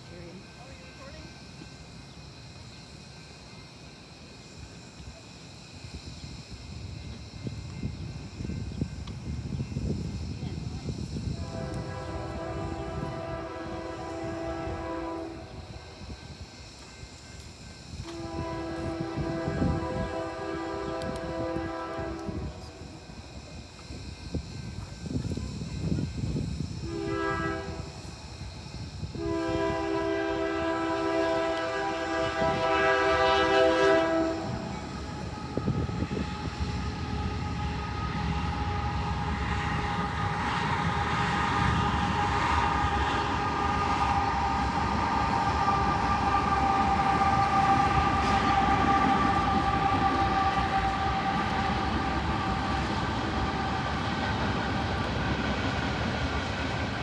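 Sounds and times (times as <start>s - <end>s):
high steady whine: 0.0s - 57.0s
train rumbling past: 0.0s - 57.0s
locomotive air horn: 11.2s - 15.8s, 18.0s - 23.1s, 26.8s - 28.1s, 29.1s - 54.1s.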